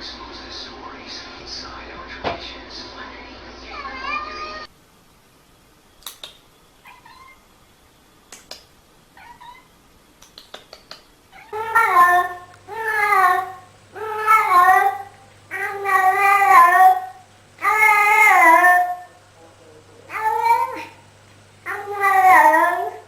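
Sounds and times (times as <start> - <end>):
cat meowing: 3.7 - 4.7, 6.8 - 7.4, 9.2 - 9.7, 11.3 - 19.2, 20.1 - 21.0, 21.7 - 23.0.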